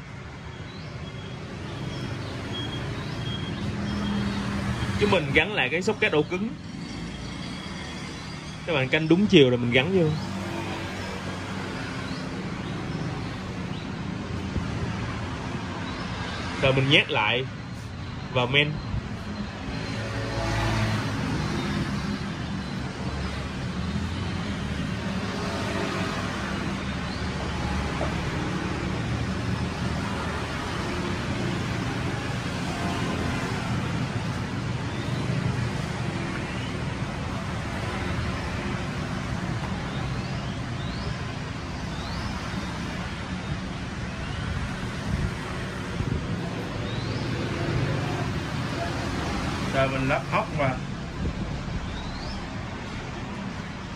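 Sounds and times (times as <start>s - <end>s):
road traffic rumble: 0.0s - 53.9s.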